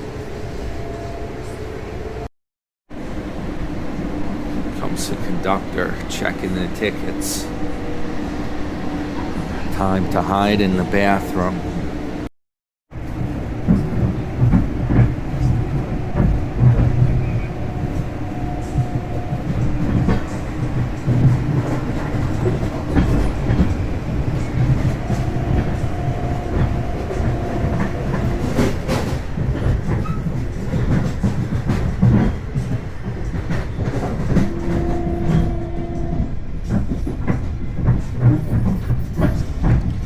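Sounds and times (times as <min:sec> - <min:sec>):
train wheels rumbling on rails: 0:02.9 - 0:12.3, 0:12.9 - 0:40.0
rail joint clicks: 0:13.0 - 0:40.0.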